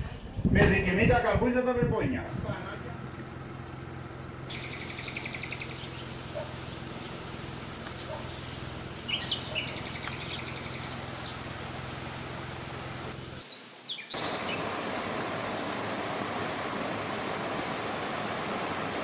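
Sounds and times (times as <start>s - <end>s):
steady low hum: 2.3s - 13.4s
small birds chirping: 2.3s - 15.1s
bird trills: 2.5s - 11.5s.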